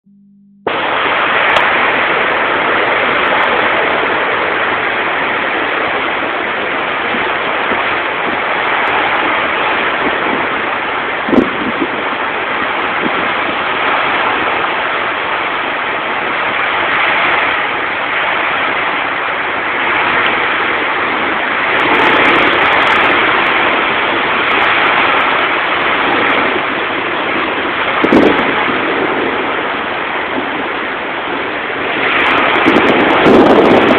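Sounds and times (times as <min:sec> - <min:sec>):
hurricane wind and rain: 0:00.7 - 0:33.9.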